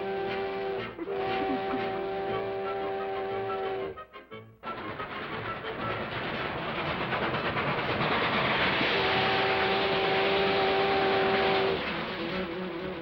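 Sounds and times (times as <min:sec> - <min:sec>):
chord-like train whistle: 0:00.0 - 0:05.9, 0:08.8 - 0:13.0
cartoon train chugging: 0:00.0 - 0:13.0.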